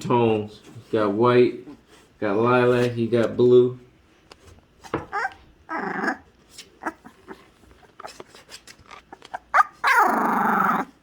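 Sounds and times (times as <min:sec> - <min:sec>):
puppy squeaking and whimpering: 0:05.0 - 0:08.2, 0:08.9 - 0:11.0.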